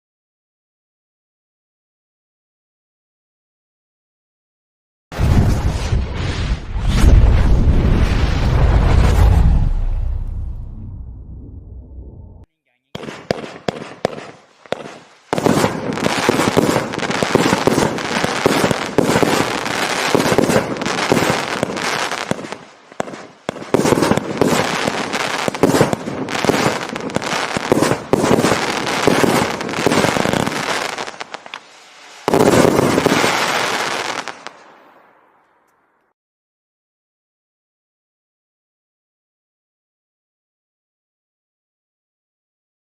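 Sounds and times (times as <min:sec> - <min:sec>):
fireworks firing: 0:05.2 - 0:10.3, 0:12.8 - 0:35.6
fireworks crackle: 0:12.8 - 0:35.9.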